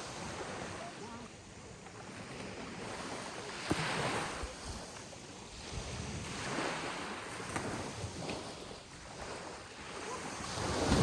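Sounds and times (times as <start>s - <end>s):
ocean waves breaking: 0.0s - 11.0s
wind buffeting microphone: 5.5s - 11.0s.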